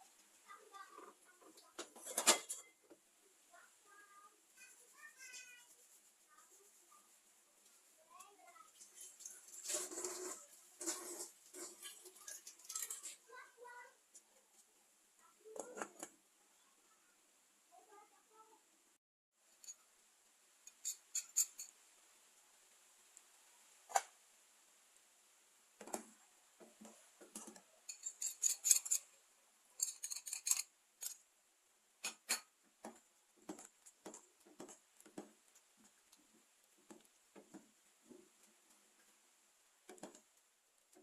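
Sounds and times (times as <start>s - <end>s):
kitchen utensils clicking and clinking: 1.5s - 2.9s, 8.7s - 13.4s, 20.7s - 21.7s, 27.2s - 29.2s, 29.8s - 31.2s, 32.0s - 32.6s.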